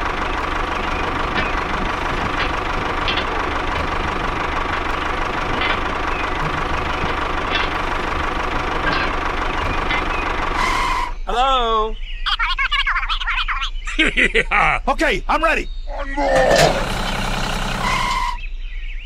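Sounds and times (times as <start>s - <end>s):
tractor engine knocking: 0.0s - 11.2s, 16.4s - 18.4s
thin steady whine: 16.0s - 18.4s.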